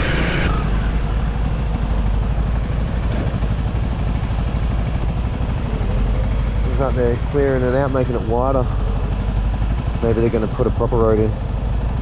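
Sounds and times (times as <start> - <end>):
dirt bike engine rumbling: 0.0 - 12.0.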